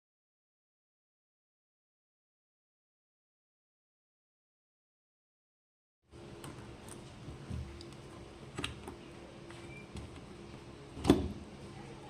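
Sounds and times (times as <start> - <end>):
steady low hum: 6.1 - 12.0.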